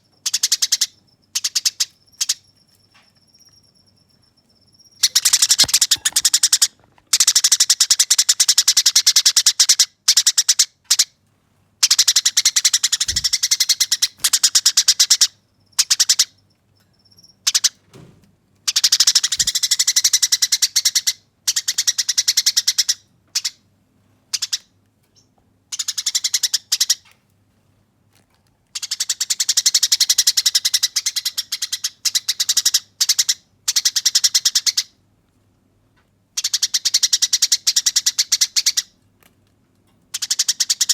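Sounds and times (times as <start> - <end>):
sparrow chattering chirps: 0.2 - 2.5, 4.6 - 6.7, 11.8 - 16.4, 18.7 - 23.5, 40.2 - 40.9.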